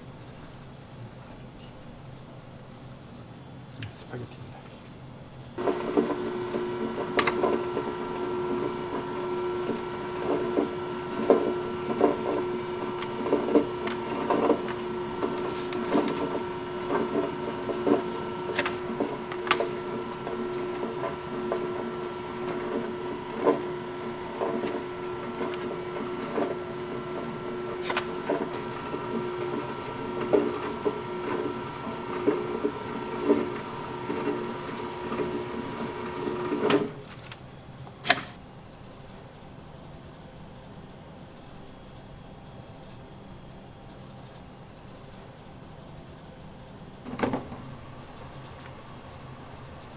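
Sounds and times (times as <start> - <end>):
pasta extruder motor hum: 5.6 - 37.2, 47.0 - 49.9.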